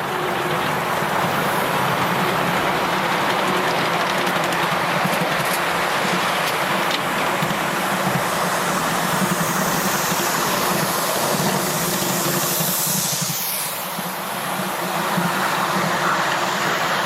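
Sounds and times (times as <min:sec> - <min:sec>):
miniature train running on track: 0:00.0 - 0:17.0.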